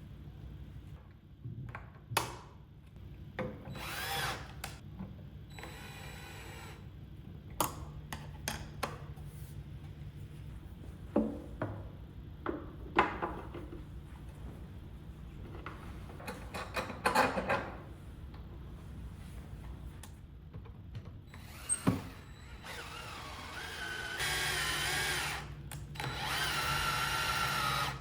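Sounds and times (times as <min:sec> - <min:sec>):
power drill whining: 0:03.7 - 0:04.8, 0:05.6 - 0:06.8, 0:21.3 - 0:28.0.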